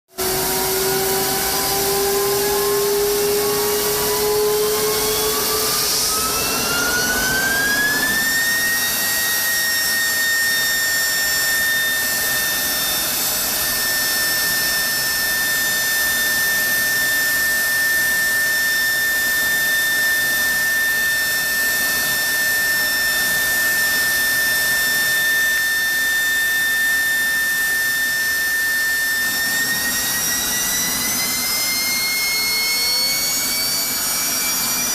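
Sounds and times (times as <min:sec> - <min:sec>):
jet engine turbine whine: 0:00.1 - 0:34.9.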